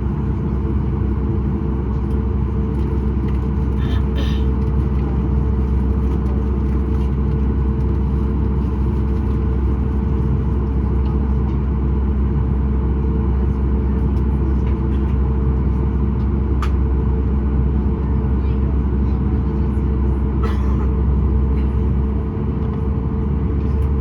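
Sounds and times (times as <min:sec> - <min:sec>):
air conditioning: 0:00.0 - 0:24.0
aircraft cabin engine drone: 0:00.0 - 0:24.0.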